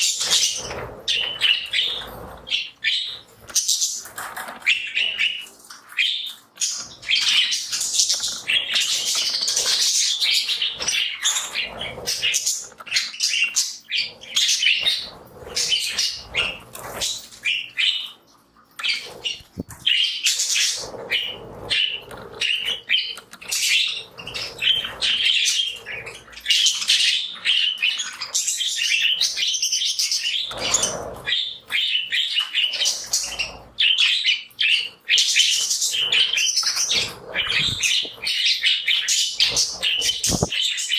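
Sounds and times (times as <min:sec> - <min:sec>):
budgies chirping and chattering: 0:00.0 - 0:40.9
wing flaps: 0:40.0 - 0:40.5.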